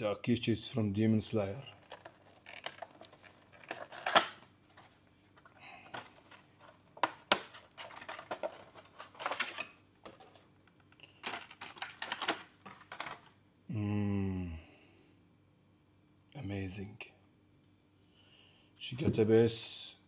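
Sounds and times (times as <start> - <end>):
short falling vocal sound: 13.7 - 14.6.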